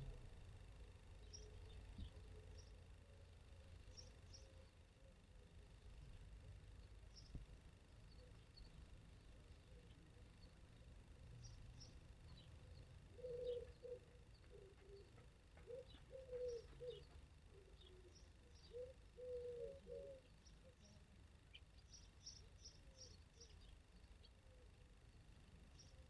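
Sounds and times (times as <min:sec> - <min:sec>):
small birds chirping: 0:01.0 - 0:26.0
dove cooing: 0:13.0 - 0:20.9.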